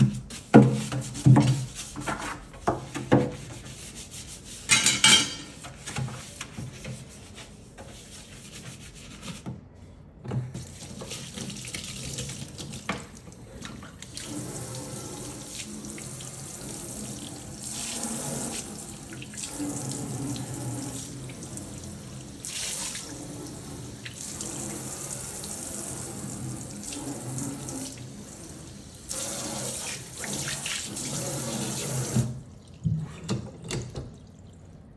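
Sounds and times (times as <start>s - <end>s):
faucet water running into sink: 10.5s - 34.6s.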